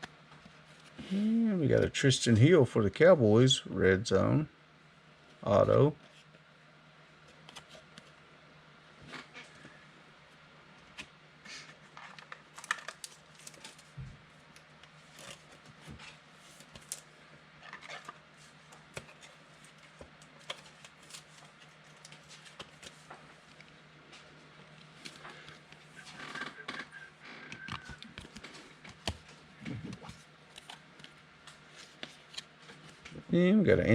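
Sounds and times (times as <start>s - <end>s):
steady low hum: 0.0s - 33.9s
cards clicking and rustling: 15.1s - 17.1s, 17.7s - 23.7s.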